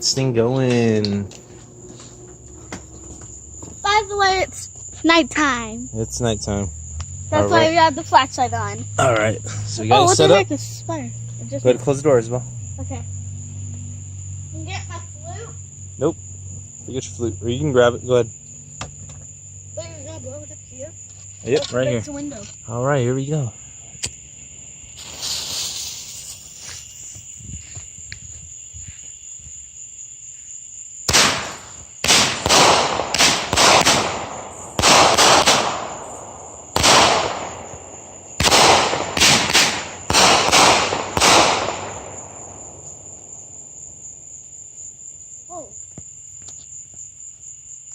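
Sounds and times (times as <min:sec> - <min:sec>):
crickets chirping: 0:00.0 - 0:47.9
firework cake bangs: 0:31.0 - 0:43.2.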